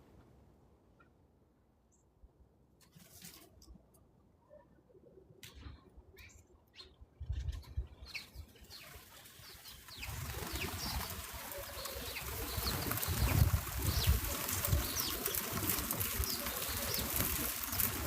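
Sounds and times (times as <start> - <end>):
small birds chirping: 4.4 - 18.0.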